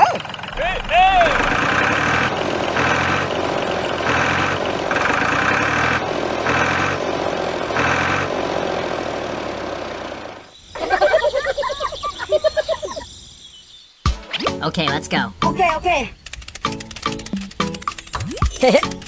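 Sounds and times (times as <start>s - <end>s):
pulsing mechanical drone: 0.0s - 10.4s.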